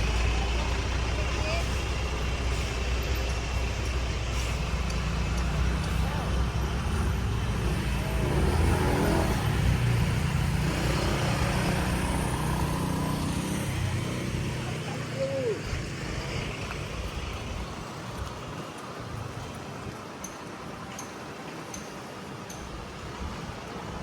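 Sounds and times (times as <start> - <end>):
vehicle driving past: 0.0 - 16.9.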